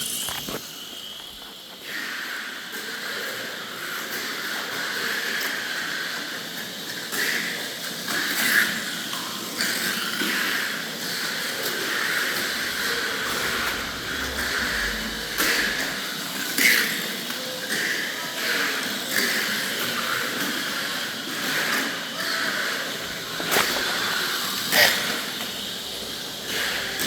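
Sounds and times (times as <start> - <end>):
toy car electric motor whine: 0.0 - 2.0, 11.4 - 16.0, 22.2 - 27.0.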